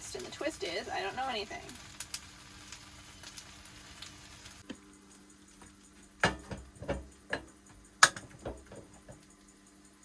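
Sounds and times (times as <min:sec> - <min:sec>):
faint pan sizzle: 0:00.0 - 0:10.0
cookware and utensils clattering: 0:06.2 - 0:09.2.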